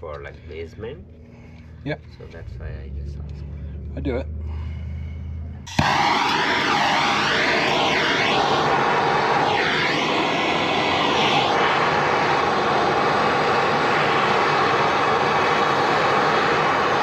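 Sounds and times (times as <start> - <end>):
gas torch hissing: 5.7 - 17.0.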